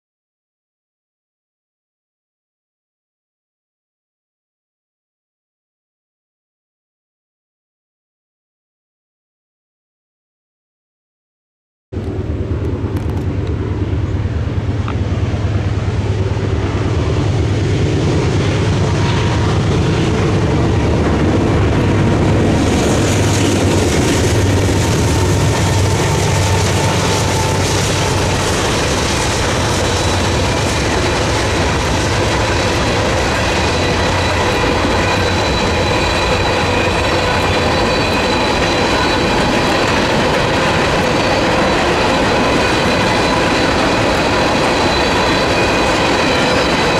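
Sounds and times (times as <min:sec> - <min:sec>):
diesel locomotive engines rumbling: 0:12.0 - 0:46.9.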